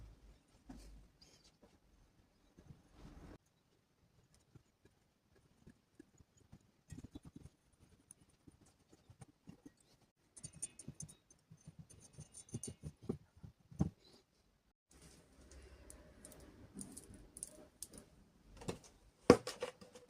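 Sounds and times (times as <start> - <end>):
small hard objects clicking and scraping: 15.0 - 18.8.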